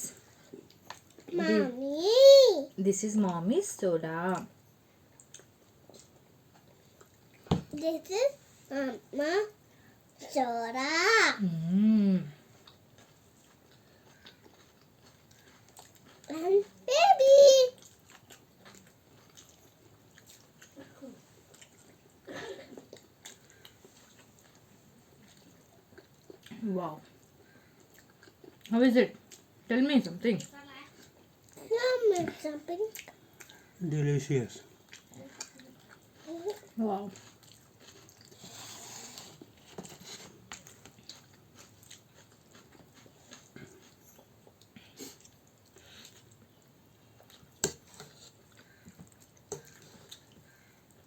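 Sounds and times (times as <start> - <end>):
people chewing food: 0.0 - 1.9, 4.3 - 10.4, 11.4 - 51.0
chewing and biting: 12.6 - 16.8, 17.8 - 20.8, 34.8 - 38.5, 39.4 - 50.4.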